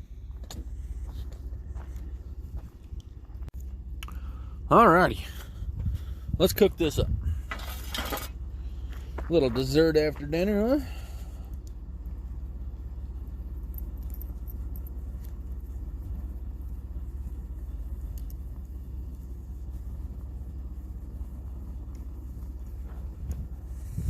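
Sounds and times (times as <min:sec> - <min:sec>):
fire low rumble: 0:00.0 - 0:24.0
campfire pops and crackles: 0:17.2 - 0:23.7.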